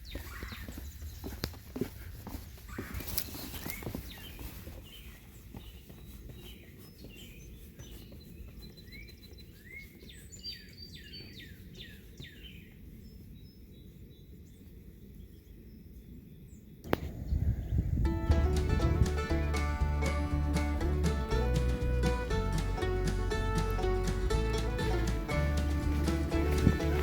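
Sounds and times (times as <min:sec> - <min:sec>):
songbirds chirping: 0:00.0 - 0:27.0
low outdoor rumble: 0:16.9 - 0:27.0.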